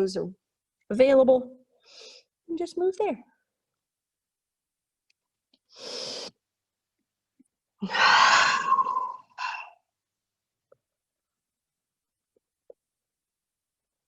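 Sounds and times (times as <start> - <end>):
person breathing: 1.8 - 2.4, 5.7 - 6.4, 7.8 - 9.8.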